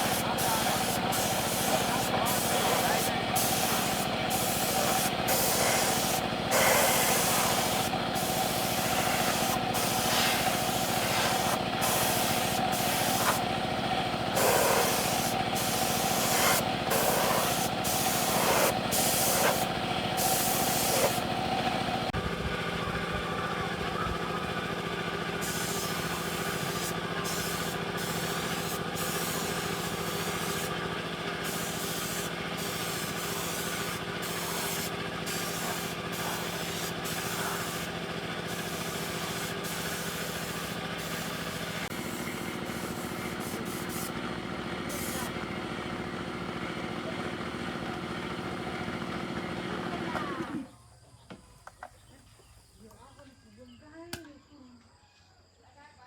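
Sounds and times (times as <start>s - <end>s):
compressed air hissing: 0.0s - 13.5s, 14.3s - 21.4s, 25.4s - 30.8s, 31.4s - 44.1s, 44.9s - 45.3s
steady machine hum: 0.0s - 45.4s.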